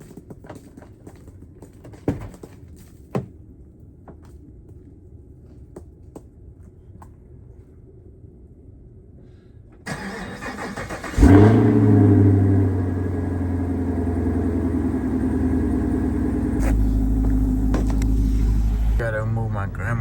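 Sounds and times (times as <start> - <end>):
car starter cranking: 9.9 - 13.5
car engine revving and idling: 10.7 - 20.0.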